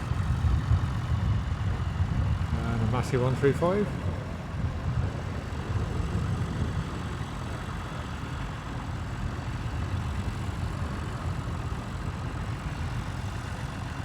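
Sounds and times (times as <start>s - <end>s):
tractor engine idling: 0.0s - 14.0s.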